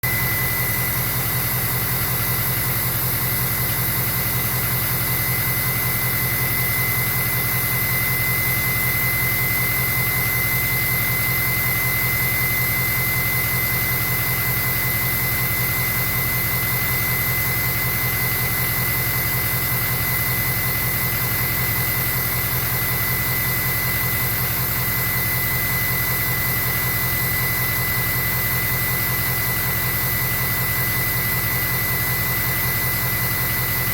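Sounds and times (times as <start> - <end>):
high turbo whistle: 0.0 - 1.4.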